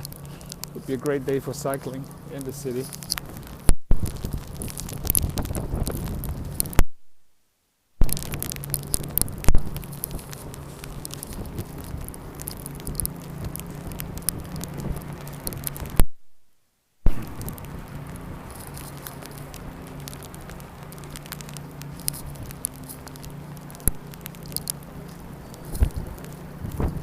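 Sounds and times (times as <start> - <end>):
sleet pattering: 0.0 - 6.8, 8.0 - 16.0, 17.0 - 27.0.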